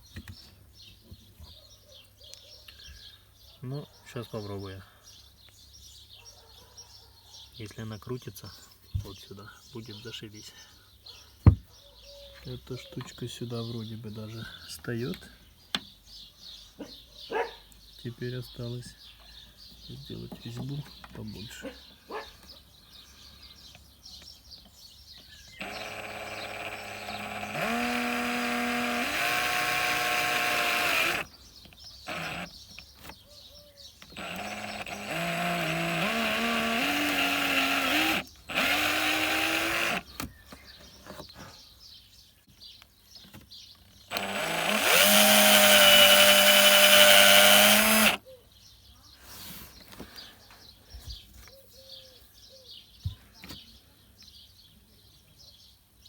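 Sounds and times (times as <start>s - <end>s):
electric drill whining: 25.6s - 31.3s, 32.0s - 32.5s, 34.1s - 40.2s, 44.1s - 48.2s.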